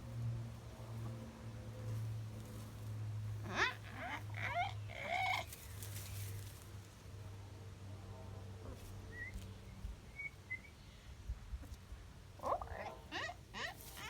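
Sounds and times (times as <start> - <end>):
chickens calling: 12.4 - 14.0.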